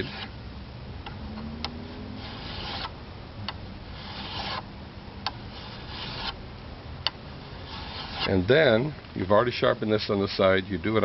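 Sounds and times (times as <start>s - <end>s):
file rasping on metal blade: 0.0s - 0.3s, 2.2s - 2.9s, 4.0s - 4.7s, 5.5s - 6.4s, 7.6s - 8.3s.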